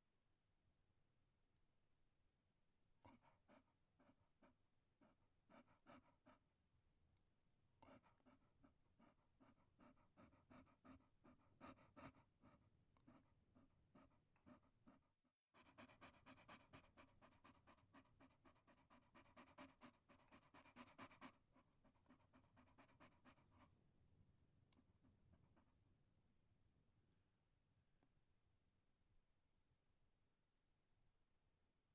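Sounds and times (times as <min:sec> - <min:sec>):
dog panting: 0:03.0 - 0:06.5, 0:07.8 - 0:24.0.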